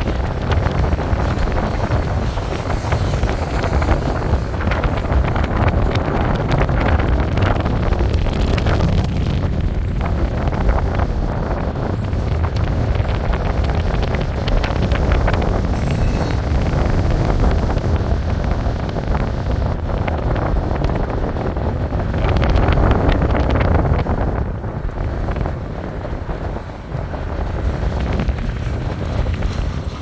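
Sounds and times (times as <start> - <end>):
train wheels clicking and clattering: 0.0 - 10.9, 11.8 - 19.0, 24.0 - 30.0
train rumbling past: 0.0 - 30.0
wind buffeting microphone: 0.0 - 30.0.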